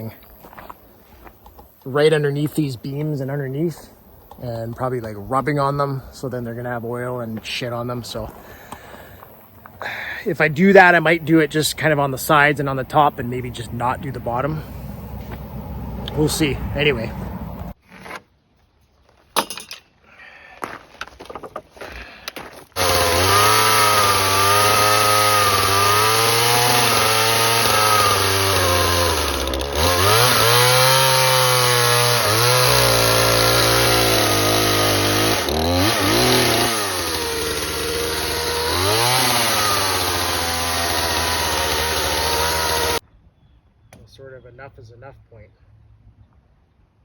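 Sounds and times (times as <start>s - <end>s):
chainsaw cutting wood: 22.7s - 43.0s.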